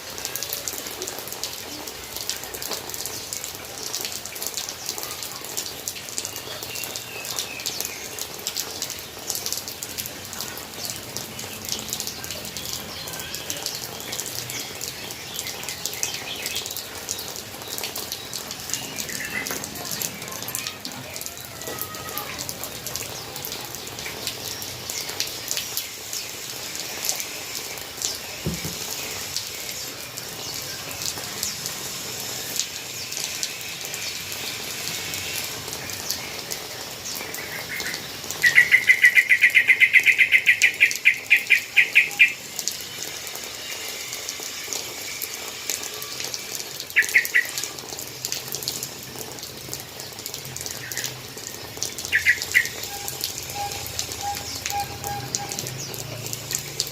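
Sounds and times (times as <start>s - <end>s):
water falling in a bird bath: 0.0s - 56.9s
drops ticking: 45.7s - 56.9s.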